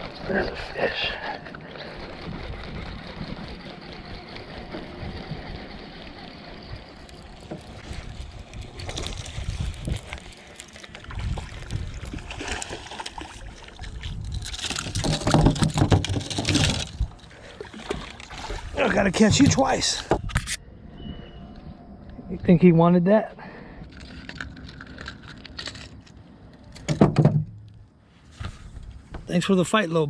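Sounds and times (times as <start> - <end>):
water splashing: 7.2 - 20.0.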